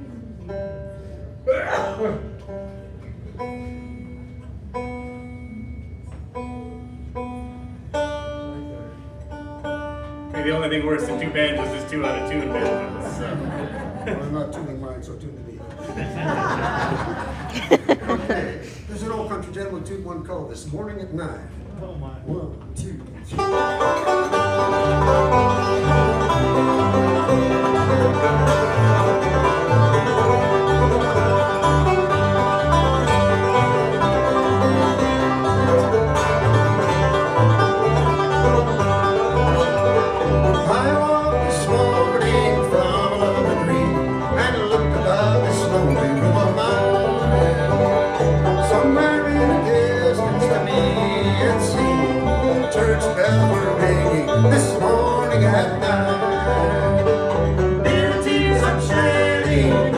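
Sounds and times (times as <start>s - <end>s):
guitar: 0.0s - 14.8s, 23.2s - 59.9s
banjos picking rolls: 2.3s - 5.4s, 9.3s - 14.7s, 21.6s - 59.9s
bass thumping: 23.4s - 59.9s.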